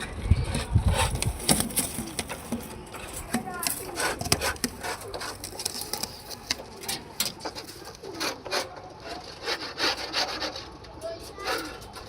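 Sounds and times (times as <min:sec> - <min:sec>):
scratchy rustling: 0:00.2 - 0:12.0.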